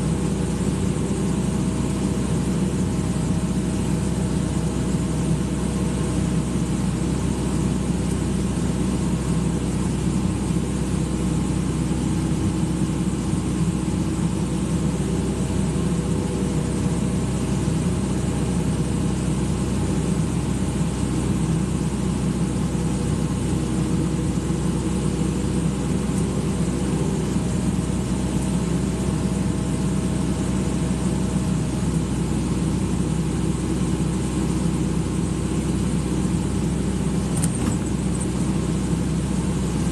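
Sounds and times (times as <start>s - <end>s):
excavator diesel engine droning: 0.0s - 39.9s.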